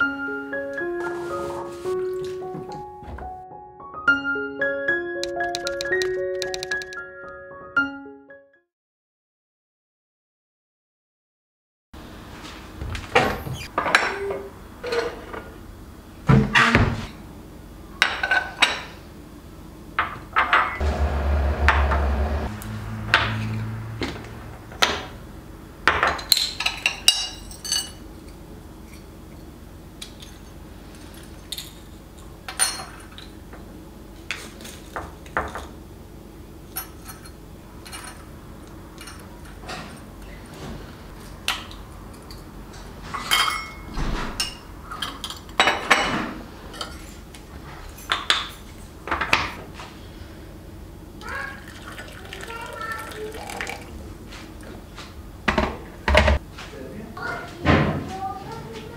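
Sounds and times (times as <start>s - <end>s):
dishes and utensils clinking: 25.9s - 29.1s, 30.0s - 33.4s, 41.5s - 47.2s.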